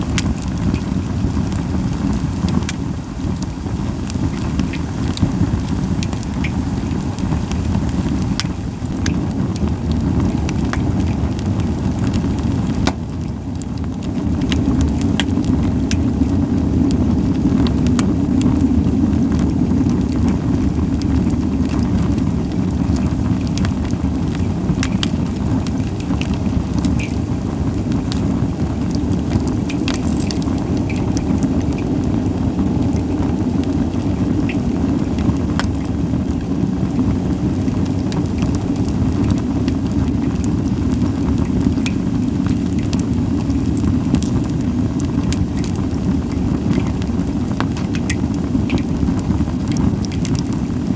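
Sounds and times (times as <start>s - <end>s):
campfire crackling and popping: 0.0s - 50.9s
steady low rumble: 0.0s - 50.9s.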